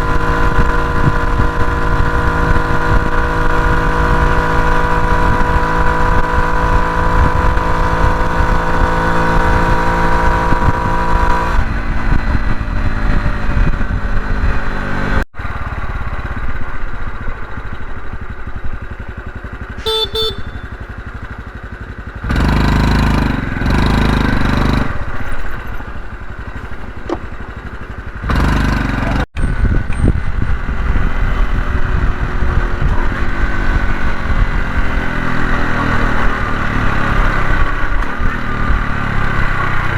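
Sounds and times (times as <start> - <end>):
wind buffeting microphone: 0.0 - 17.3, 29.4 - 39.9
motorcycle engine running: 0.0 - 39.9
short beep: 19.8 - 20.9.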